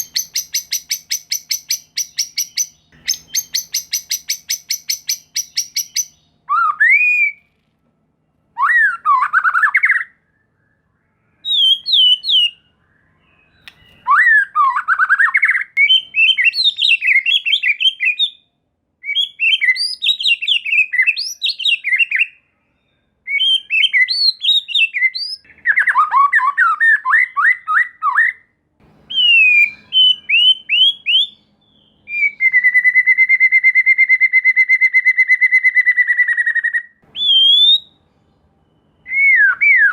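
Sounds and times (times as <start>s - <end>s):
bird song fast rattle: 0.0s - 6.1s
bird singing whistled phrases: 0.0s - 7.4s, 8.6s - 18.4s, 19.0s - 28.5s, 29.1s - 38.0s, 38.7s - 39.9s.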